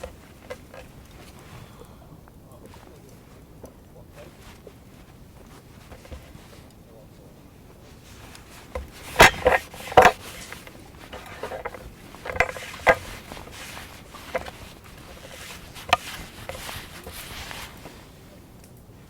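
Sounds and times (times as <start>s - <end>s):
scraping rustles: 0.0s - 19.0s
sharp knocks and clatters: 8.2s - 18.0s.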